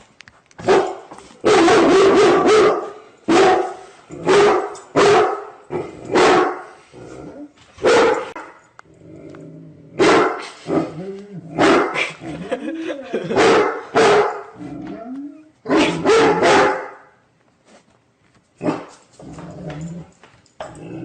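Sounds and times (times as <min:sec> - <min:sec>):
dog barking: 0:00.6 - 0:06.7, 0:07.8 - 0:08.6, 0:10.0 - 0:10.9, 0:11.6 - 0:12.1, 0:13.3 - 0:14.6, 0:15.7 - 0:17.2, 0:18.6 - 0:18.9.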